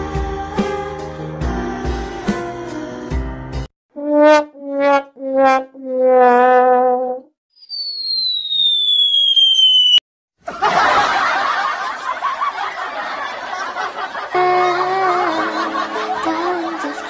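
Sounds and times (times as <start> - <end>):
cartoon falling whistle: 7.5 - 10.0
canned audience laughter: 10.4 - 17.0.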